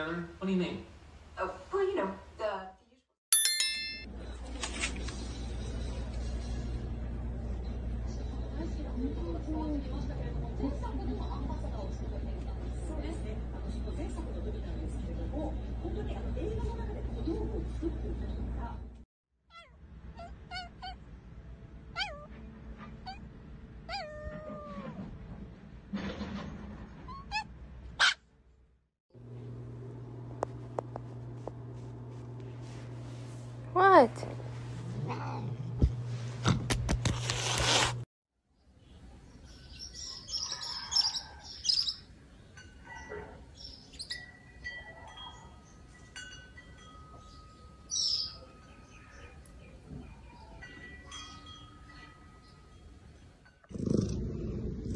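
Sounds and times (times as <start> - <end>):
wind chimes ringing softly: 3.3 - 4.1, 44.0 - 53.6
small dog yelping: 19.5 - 21.0, 21.9 - 23.3, 23.9 - 25.0, 27.1 - 28.2
birds chirping: 38.6 - 46.1, 47.1 - 53.4.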